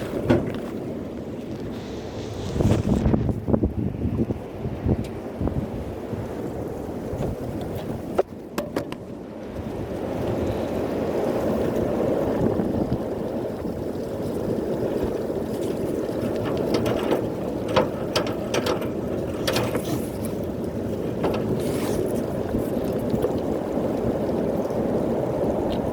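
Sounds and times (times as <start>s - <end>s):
wind buffeting microphone: 0.0s - 25.9s
clicks and rattles: 15.6s - 23.3s.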